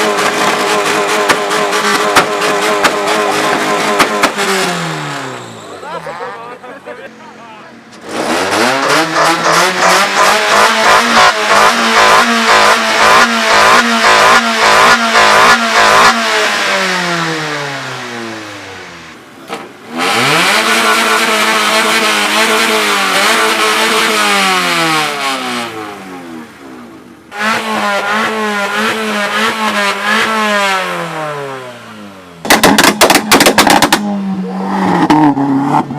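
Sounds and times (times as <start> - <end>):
loud exhaust cracks: 0.0 - 5.6, 32.4 - 34.2
car engine revving: 0.0 - 35.9.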